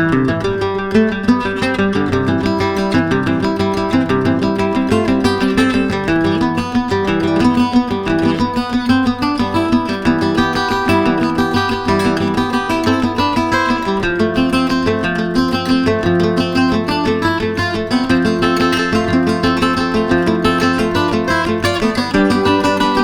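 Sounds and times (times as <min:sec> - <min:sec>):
fast plucked-string notes: 0:16.4 - 0:23.0.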